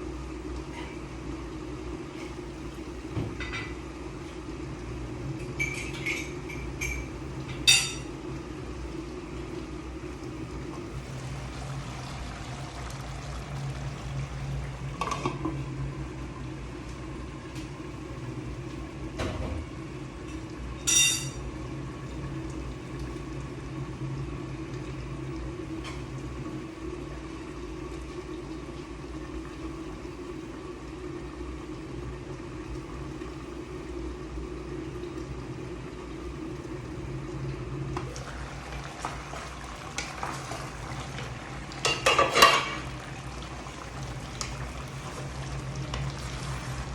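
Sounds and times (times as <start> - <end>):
low kitchen hum: 0.0 - 46.9
metal utensils clinking on pans: 5.6 - 8.1, 20.8 - 21.4, 41.8 - 42.8.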